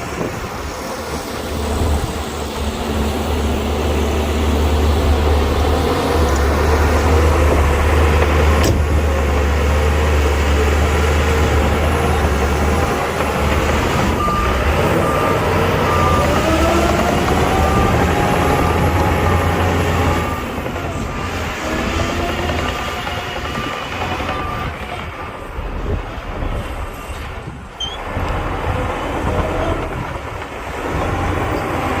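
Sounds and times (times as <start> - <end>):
diesel truck engine rumbling: 0.0 - 32.0
reversing alarm beeping: 14.0 - 26.0.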